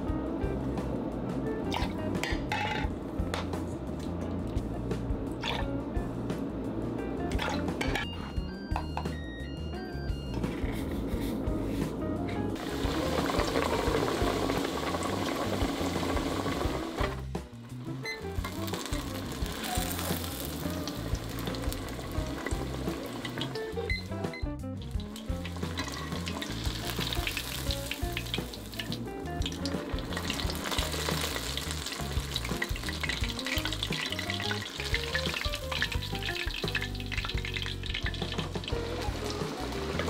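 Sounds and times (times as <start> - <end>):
background music: 0.0 - 40.0
cutlet deep-frying in oil: 12.6 - 24.2, 24.8 - 40.0.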